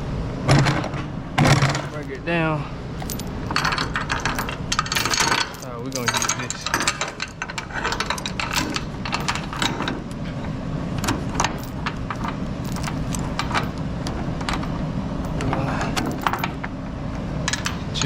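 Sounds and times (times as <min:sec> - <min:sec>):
chain clinking and rattling: 0:01.4 - 0:16.8, 0:17.4 - 0:18.0.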